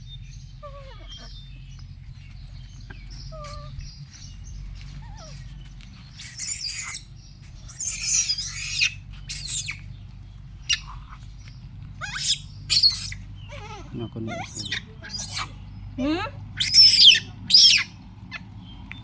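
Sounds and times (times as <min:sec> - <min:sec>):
low steady hum: 0:00.0 - 0:19.0
monkey squealing: 0:06.2 - 0:07.0, 0:07.7 - 0:09.8, 0:12.0 - 0:18.4.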